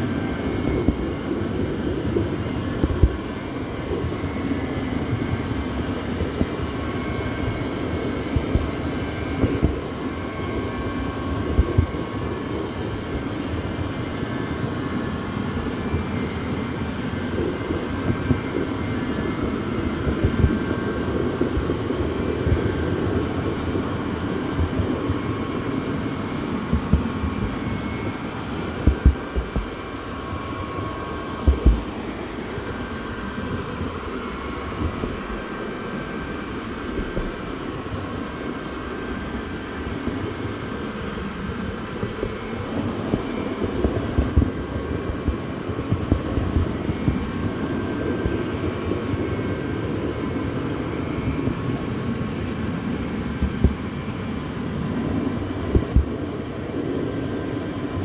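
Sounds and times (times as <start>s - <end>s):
train rumble: 16.7s - 49.2s
low knocks: 31.4s - 31.9s.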